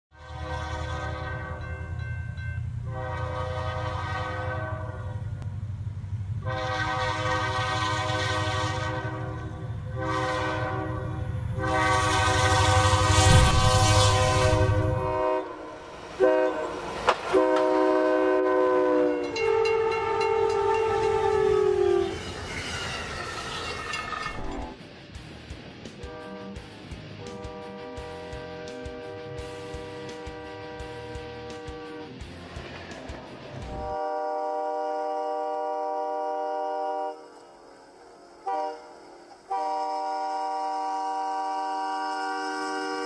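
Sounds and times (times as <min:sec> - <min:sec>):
locomotive horn blasts: 0:00.1 - 0:02.0, 0:02.8 - 0:05.5, 0:06.4 - 0:22.4, 0:26.0 - 0:26.6, 0:27.2 - 0:32.1, 0:33.8 - 0:37.3, 0:38.4 - 0:43.0
moving train rumble: 0:00.1 - 0:43.0.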